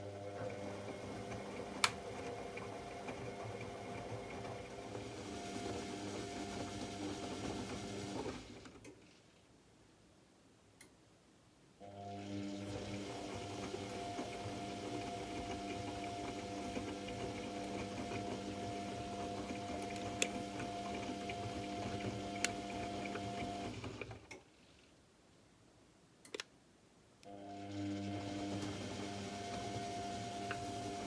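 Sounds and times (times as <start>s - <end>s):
washing machine motor humming: 0.0s - 8.5s, 11.8s - 23.8s, 27.3s - 31.0s.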